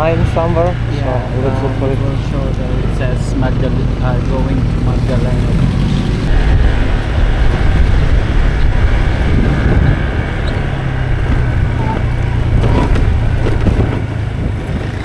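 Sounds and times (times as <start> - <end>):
motorbike engine running: 0.0 - 15.0
wind rumble on microphone: 2.2 - 15.0.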